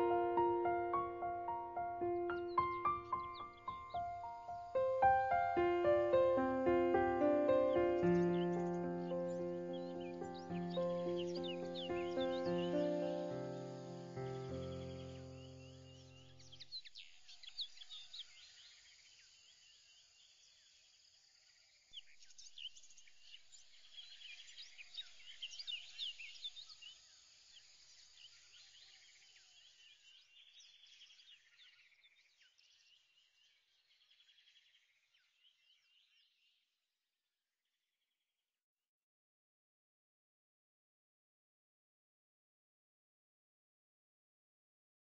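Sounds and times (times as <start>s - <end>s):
small birds chirping: 0.0s - 21.1s, 21.8s - 36.6s.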